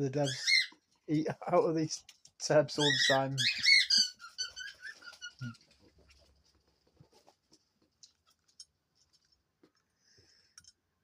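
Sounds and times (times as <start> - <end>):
faint bird chirps: 2.8 - 5.6.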